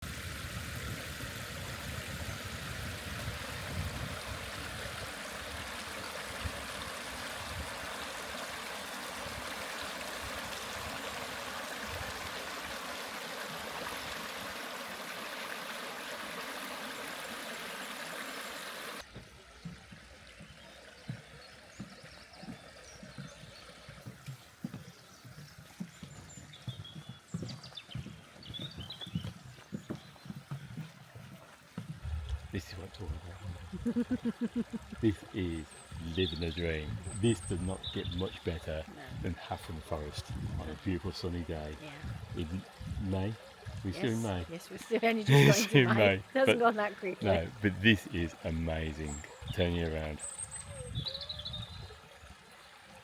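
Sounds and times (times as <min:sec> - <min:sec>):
waterfall rushing: 0:04.2 - 0:19.0, 0:32.6 - 0:50.2.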